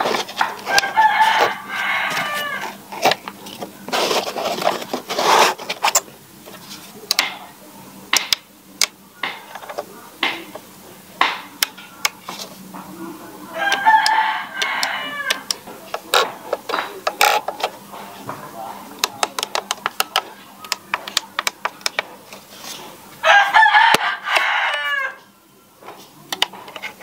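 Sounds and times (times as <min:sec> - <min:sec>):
rooster crowing: 0:00.6 - 0:02.8, 0:13.5 - 0:15.6, 0:23.2 - 0:25.3.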